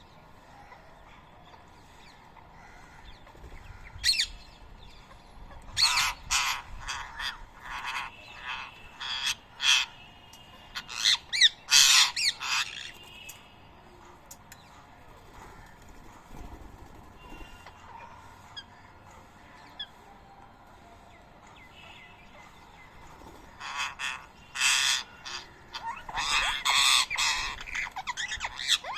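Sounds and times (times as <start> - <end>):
parakeets squawking: 5.8 - 13.3, 23.5 - 28.9.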